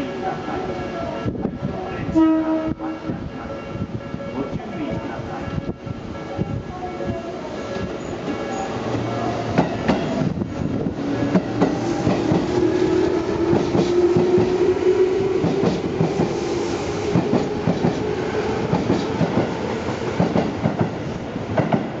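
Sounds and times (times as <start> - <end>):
train hum: 0.0 - 22.0
train wheels clacking over joints: 11.1 - 14.6, 17.1 - 21.9.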